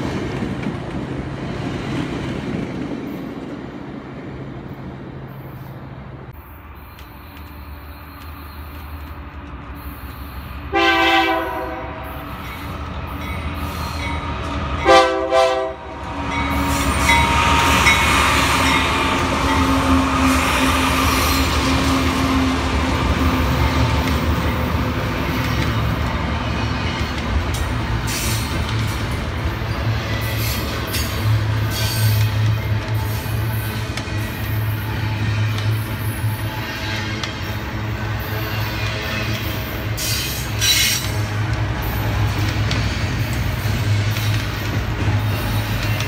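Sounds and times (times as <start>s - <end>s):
freight train rolling past: 0.0s - 46.0s
passing commuter train rumble: 0.0s - 46.0s
locomotive horn blasts: 10.7s - 12.2s, 14.8s - 16.0s.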